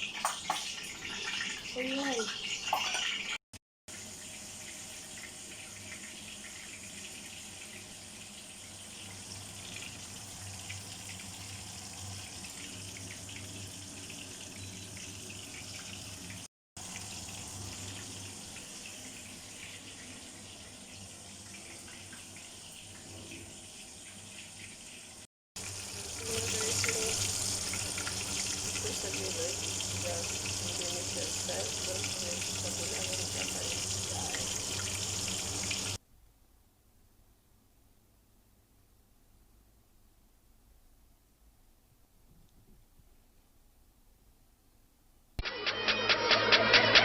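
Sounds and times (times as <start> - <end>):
chicken deep-frying in oil: 0.0 - 36.0.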